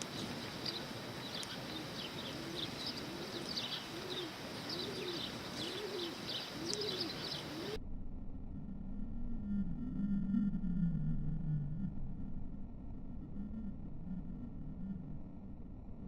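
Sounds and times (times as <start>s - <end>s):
low cooing call: 0.0s - 7.8s
sparrows chirping: 0.0s - 7.8s
low hum: 0.0s - 16.0s.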